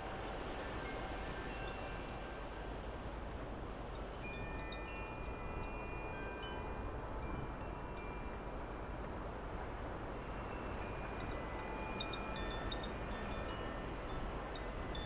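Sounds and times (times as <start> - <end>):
wind hiss: 0.0 - 15.0
wind chimes ringing: 0.5 - 2.4, 4.2 - 9.0, 10.3 - 15.0.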